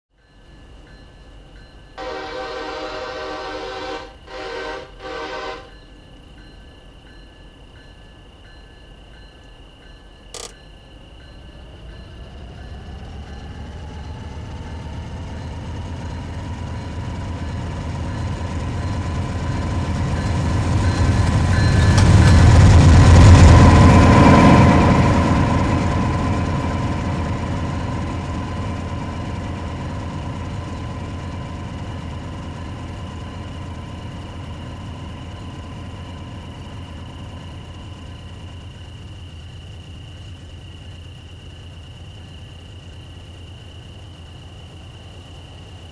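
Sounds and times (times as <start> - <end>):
diesel locomotive engine rumble: 0.7 - 45.9
steady pitched hum: 10.4 - 41.0.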